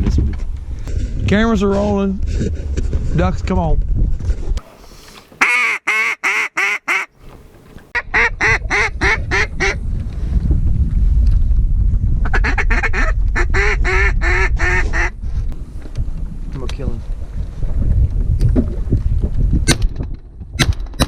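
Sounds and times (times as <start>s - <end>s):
wind rumble on microphone: 0.0s - 4.6s, 7.4s - 21.0s
duck call quacks: 5.4s - 7.1s, 12.3s - 15.1s.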